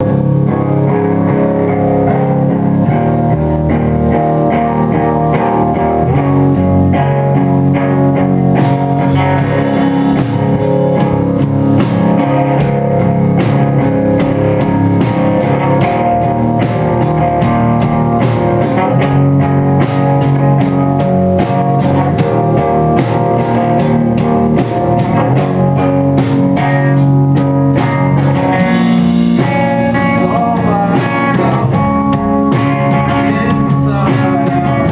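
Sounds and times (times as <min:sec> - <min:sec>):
live band playing: 0:00.0 - 0:34.9
sharp hits: 0:08.1 - 0:26.9, 0:27.7 - 0:34.5.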